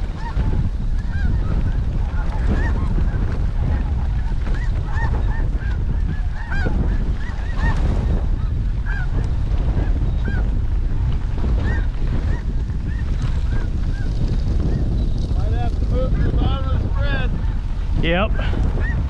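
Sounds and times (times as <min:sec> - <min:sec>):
geese honking: 0:00.0 - 0:10.6, 0:11.6 - 0:14.1
wind rumble on microphone: 0:00.0 - 0:19.0.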